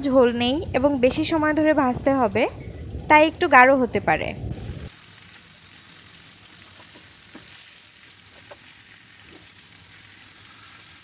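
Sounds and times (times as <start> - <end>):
chicken sizzling in oil: 4.5 - 11.0.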